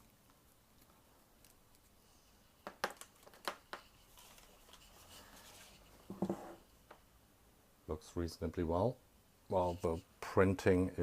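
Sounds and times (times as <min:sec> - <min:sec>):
soft plastic rustle: 0:00.0 - 0:06.9
plastic packaging clicks and crinkles: 0:02.6 - 0:04.8.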